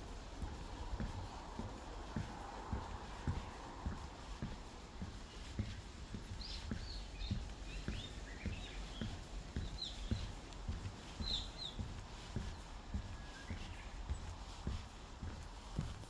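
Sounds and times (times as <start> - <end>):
footsteps walking: 0.0 - 16.0
birds chirping: 6.1 - 14.2.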